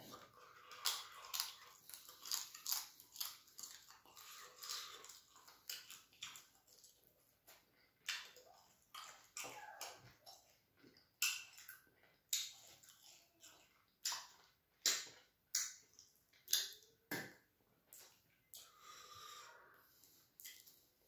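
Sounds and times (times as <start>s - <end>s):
person chewing with wet lip smacks: 0.2s - 17.0s, 20.1s - 20.9s.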